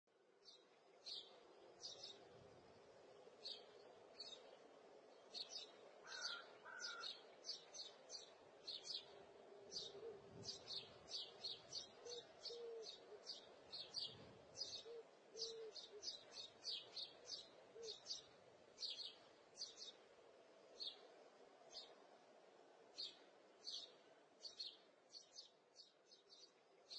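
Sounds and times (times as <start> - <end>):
faint bird chirps: 5.3 - 20.0.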